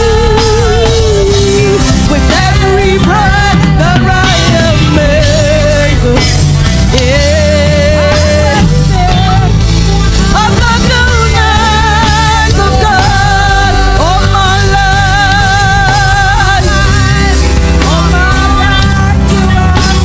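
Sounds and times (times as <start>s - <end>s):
band with drums and bass: 0.0s - 20.0s
gospel singers: 0.0s - 20.0s.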